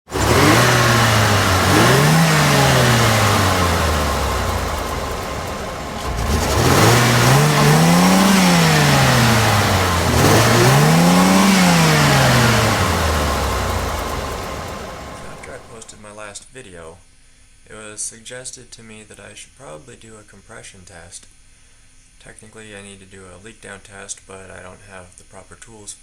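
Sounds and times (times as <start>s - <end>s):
car engine idling and revving: 0.0s - 15.9s.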